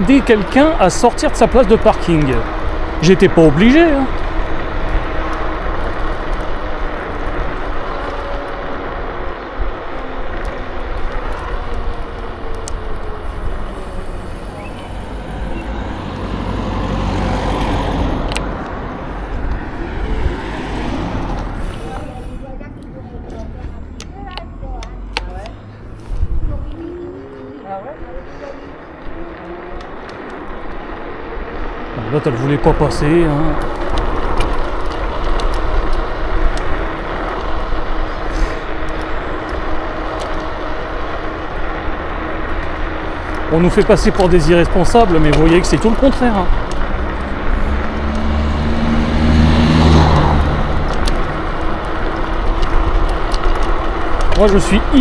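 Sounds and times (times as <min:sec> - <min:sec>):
wind noise: 0:00.0 - 0:23.0, 0:25.6 - 0:27.4
road rumble: 0:00.0 - 0:55.0.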